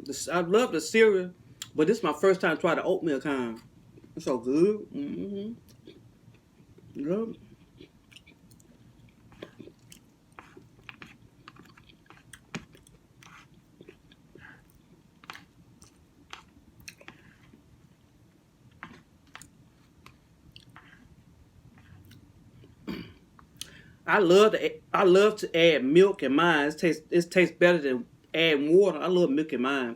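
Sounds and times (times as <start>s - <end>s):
chewing soft food: 5.6s - 23.8s.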